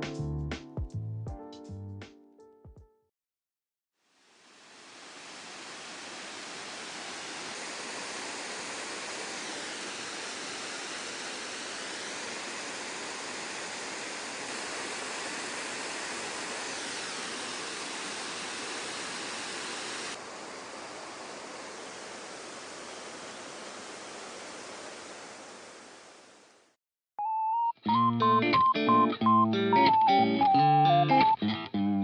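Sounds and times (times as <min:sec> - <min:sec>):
waterfall rushing: 0:04.2 - 0:26.5.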